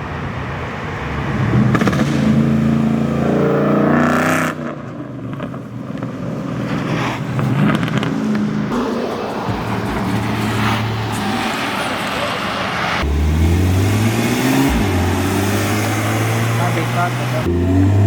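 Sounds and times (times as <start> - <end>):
car engine revving: 1.0 - 18.0.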